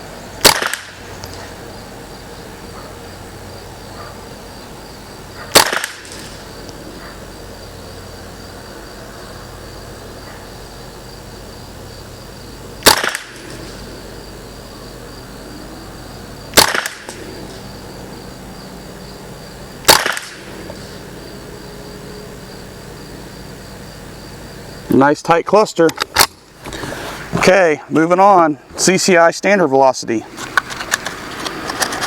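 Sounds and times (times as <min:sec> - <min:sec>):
rifle shots: 0:00.4 - 0:01.0, 0:05.5 - 0:06.5, 0:12.8 - 0:13.8, 0:16.5 - 0:17.3, 0:19.8 - 0:20.6.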